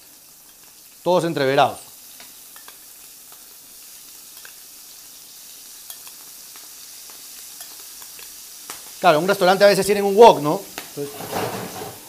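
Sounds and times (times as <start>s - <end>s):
seafood sizzling in hot oil: 0.0s - 12.0s
small oil pops: 2.1s - 3.5s, 5.9s - 9.0s, 10.7s - 11.0s.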